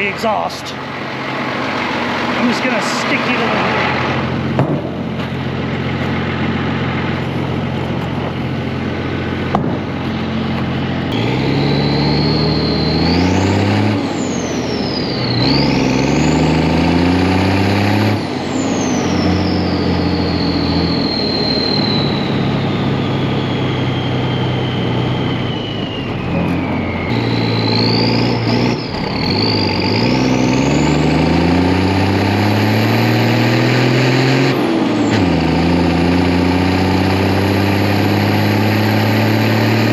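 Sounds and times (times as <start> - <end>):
truck engine idling and revving: 0.0 - 39.9
turbo whistle: 11.1 - 16.2, 18.2 - 30.9.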